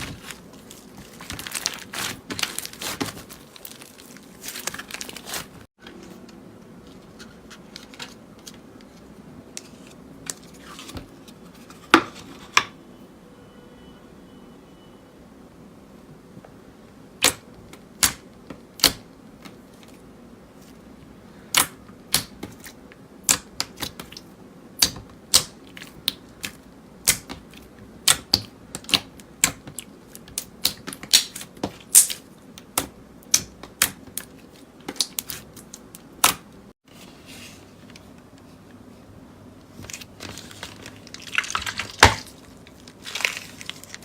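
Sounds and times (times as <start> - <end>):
slime clicking and popping: 24.8 - 34.3.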